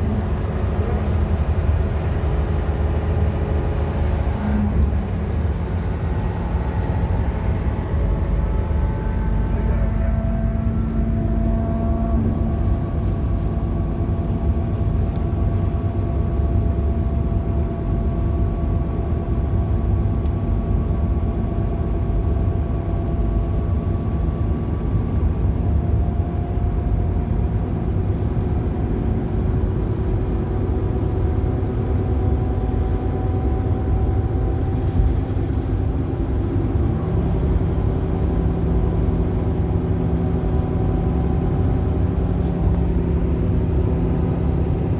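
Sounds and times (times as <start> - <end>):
bus engine and road noise: 0.0 - 44.9.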